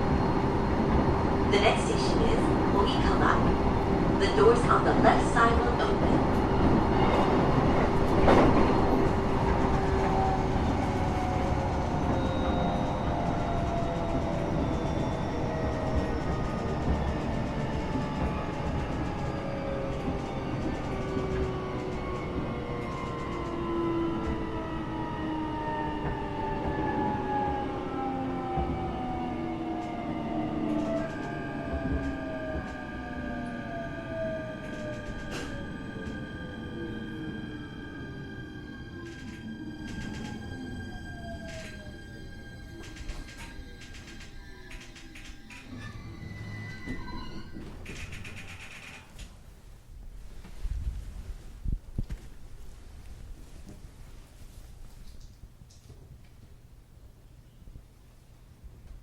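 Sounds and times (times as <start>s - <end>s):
train wheels rumbling on rails: 0.0s - 49.4s.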